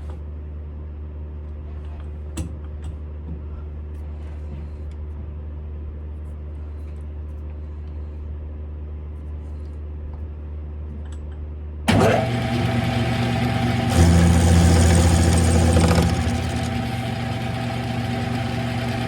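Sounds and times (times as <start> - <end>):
lathe motor humming: 11.9 - 19.0.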